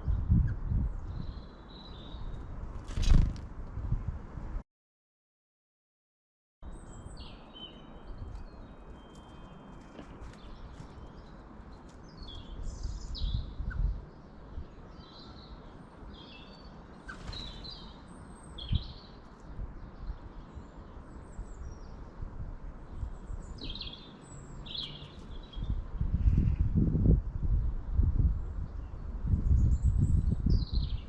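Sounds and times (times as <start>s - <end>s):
small birds chirping: 6.6s - 22.2s, 22.8s - 26.7s, 28.3s - 31.0s.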